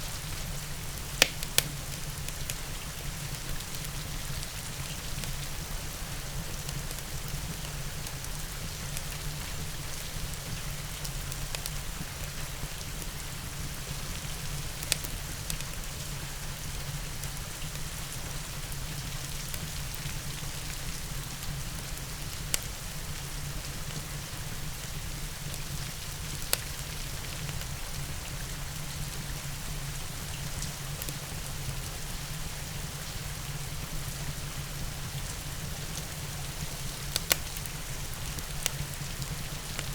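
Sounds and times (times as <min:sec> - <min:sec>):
steady rain falling: 0:00.0 - 0:39.9
wood fire popping: 0:00.5 - 0:02.6, 0:25.5 - 0:27.6, 0:35.9 - 0:39.9.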